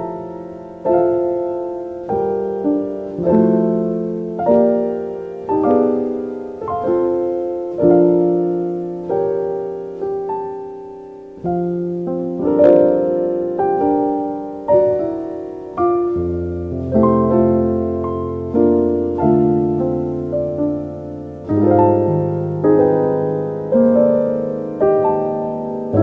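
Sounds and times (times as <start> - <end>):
slow solo piano chords: 0.0 - 26.0.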